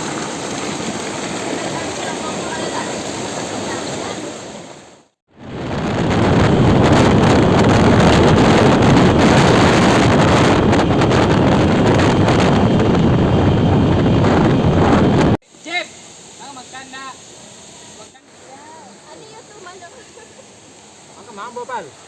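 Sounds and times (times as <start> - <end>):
waterfall rushing: 0.0 - 5.2.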